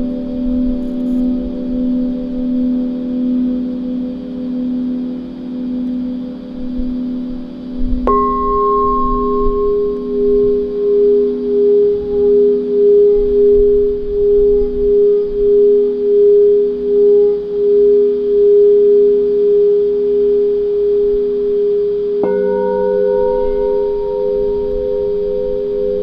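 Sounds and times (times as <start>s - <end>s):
singing bowl low tone: 0.0s - 26.0s
singing bowl struck ringing: 7.3s - 16.2s, 21.5s - 26.0s.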